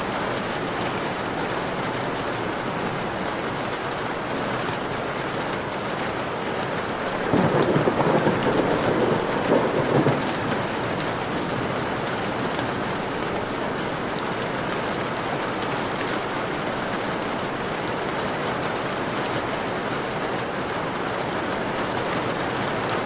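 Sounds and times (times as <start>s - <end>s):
rain pattering on a window: 0.0s - 23.0s
thunder rumbling: 7.1s - 12.9s.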